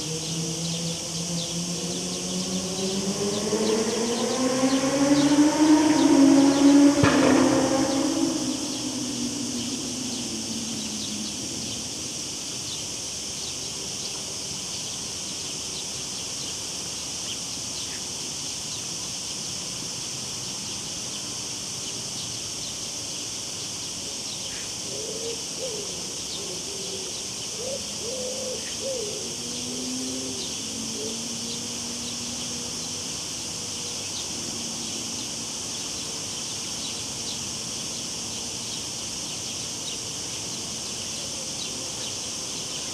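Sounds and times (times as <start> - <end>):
cicadas droning: 0.0 - 42.9.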